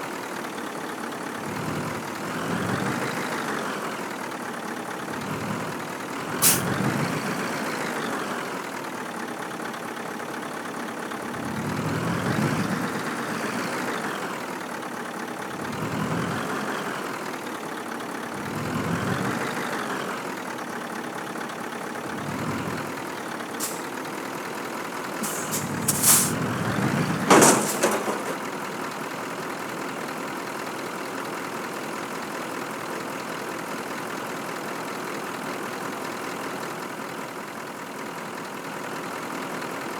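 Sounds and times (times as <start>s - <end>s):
truck engine revving: 1.3s - 3.9s, 5.0s - 8.3s, 11.2s - 14.3s, 15.4s - 17.1s, 18.3s - 20.2s, 22.0s - 28.7s
air brake hisses: 6.4s - 6.8s, 23.6s - 23.9s, 25.2s - 26.5s, 27.3s - 28.4s.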